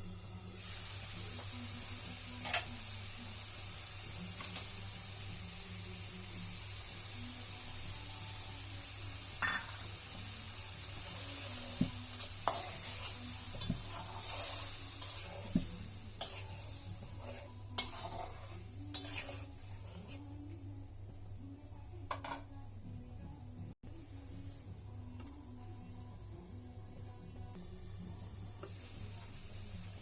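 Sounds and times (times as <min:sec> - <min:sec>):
food sizzling in a pan: 0:00.0 - 0:30.0
spatula scraping a pan: 0:11.0 - 0:20.3.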